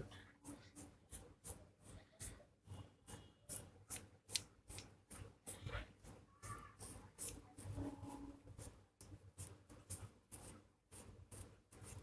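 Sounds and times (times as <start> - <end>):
scrubbing on rubber piston: 8.5 - 12.0.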